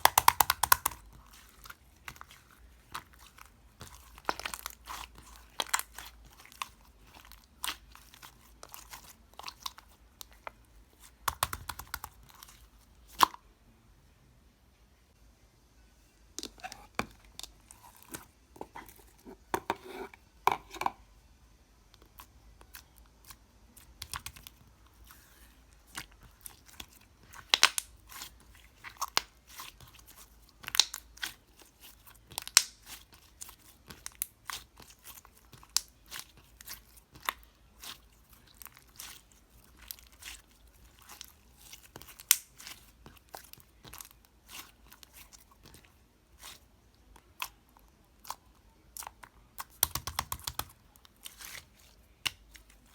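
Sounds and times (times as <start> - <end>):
slime crackling and popping: 0.0 - 10.5, 11.2 - 12.5, 25.2 - 46.6, 48.2 - 52.9.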